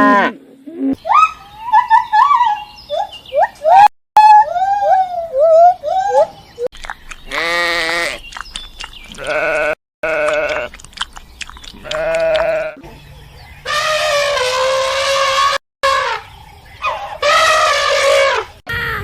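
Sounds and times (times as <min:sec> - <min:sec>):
farm animal bleating: 0:07.3 - 0:08.3, 0:09.1 - 0:10.8, 0:11.8 - 0:12.8.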